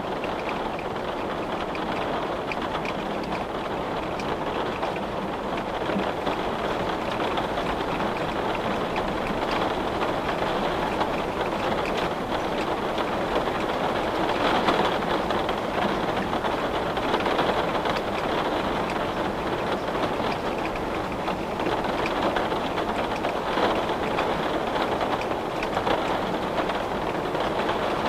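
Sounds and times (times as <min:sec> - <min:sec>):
rain against a window: 0:00.0 - 0:28.0.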